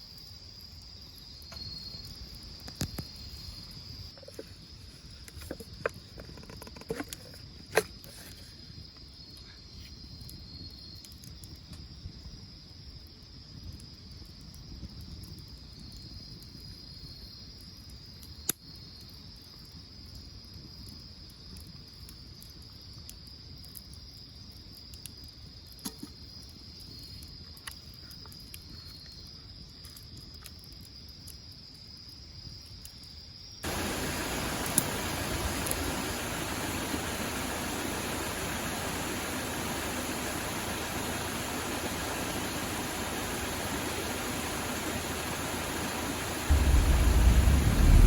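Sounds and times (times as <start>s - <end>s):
crickets chirping: 0.0s - 18.1s, 26.2s - 48.0s
wood fire popping and crackling: 33.6s - 48.0s
loud steady rushing noise: 33.7s - 48.0s.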